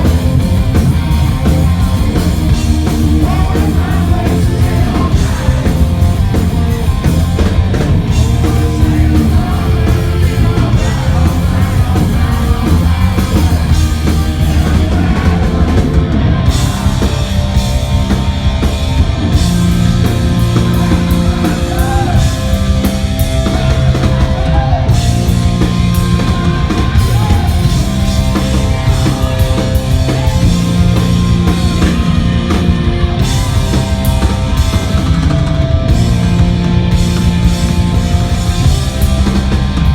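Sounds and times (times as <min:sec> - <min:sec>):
hard rock band playing live: 0:00.0 - 0:39.9
heavy bass: 0:00.0 - 0:39.9
pounding drum kit: 0:00.0 - 0:39.9
person singing: 0:02.5 - 0:06.0, 0:08.2 - 0:17.4, 0:20.3 - 0:22.6.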